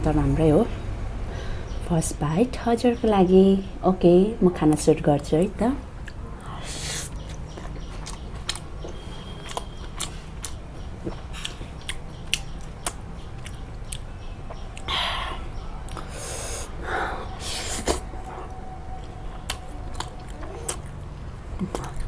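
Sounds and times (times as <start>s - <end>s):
chewing with mouth clicks: 6.0s - 15.2s, 15.8s - 16.3s, 17.4s - 22.0s.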